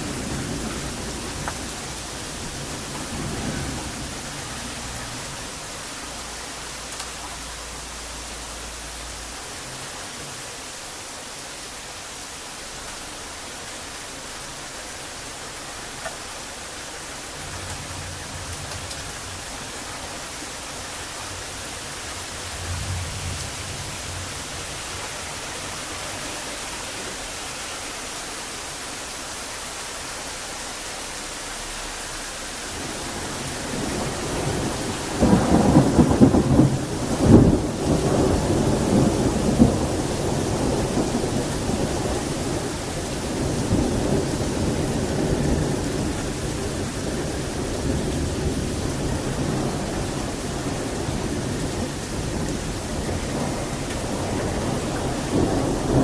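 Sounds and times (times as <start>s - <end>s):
thunder rumbling and cracking: 0.0s - 6.0s, 17.3s - 26.2s, 32.7s - 56.0s
heavy rain hiss: 0.0s - 56.0s.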